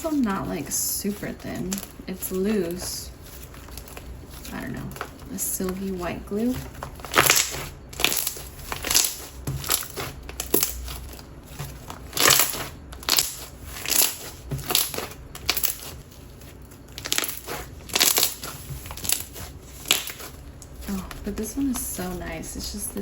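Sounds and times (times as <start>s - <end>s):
slime squishing and popping: 6.6s - 21.2s.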